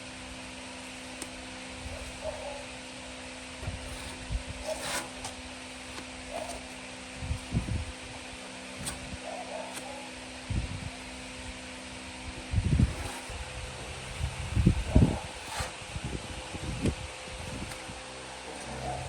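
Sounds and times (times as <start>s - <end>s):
steady mechanical hum: 0.0s - 19.0s
brief scrape: 3.9s - 5.3s.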